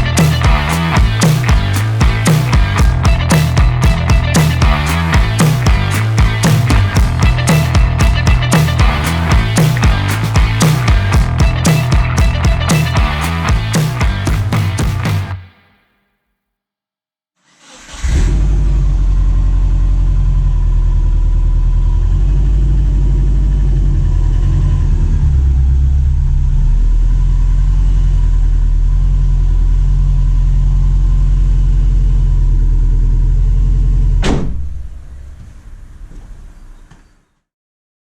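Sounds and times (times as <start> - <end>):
car engine running: 0.0 - 15.4.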